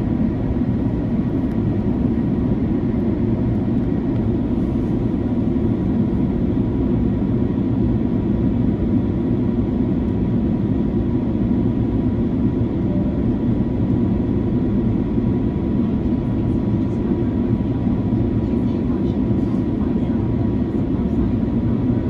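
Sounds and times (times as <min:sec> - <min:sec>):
aircraft cabin engine rumble: 0:00.0 - 0:22.0.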